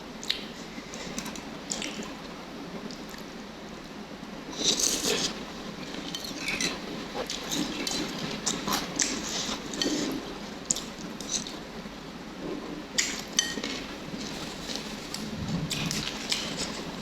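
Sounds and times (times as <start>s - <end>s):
utensils clinking against bowl: 13.0s - 14.8s
chewing and mouth sounds: 13.0s - 17.0s.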